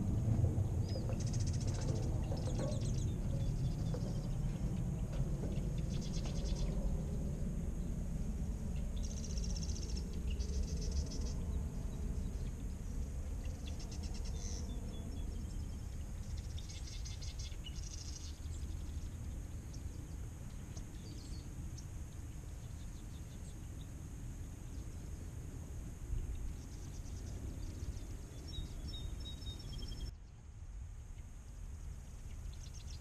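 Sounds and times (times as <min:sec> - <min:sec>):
low rumble: 0:00.0 - 0:17.7
birds trilling: 0:00.6 - 0:08.0, 0:08.6 - 0:23.9.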